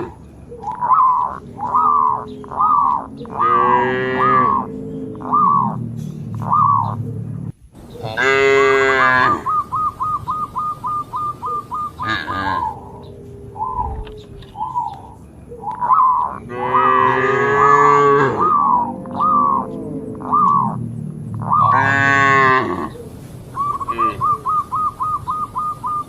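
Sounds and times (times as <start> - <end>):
cattle mooing: 1.2 - 6.8, 8.0 - 9.5, 12.0 - 13.0, 16.4 - 23.0.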